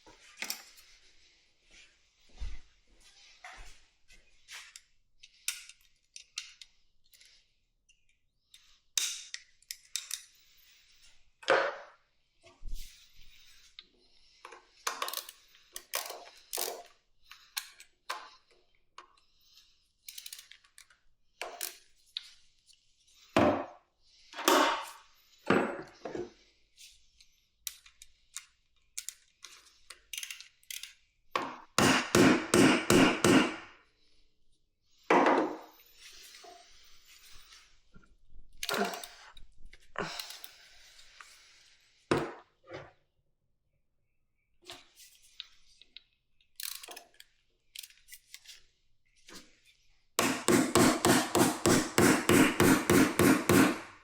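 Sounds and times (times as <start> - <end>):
tools and metal parts clanking: 14.5 - 16.9, 29.0 - 31.6, 38.5 - 40.6, 46.5 - 48.6
hard knocks: 31.8 - 33.6.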